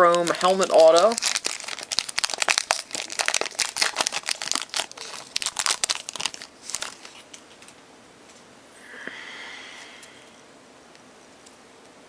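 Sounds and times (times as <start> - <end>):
wrapper crinkling and tearing: 0.0 - 7.8.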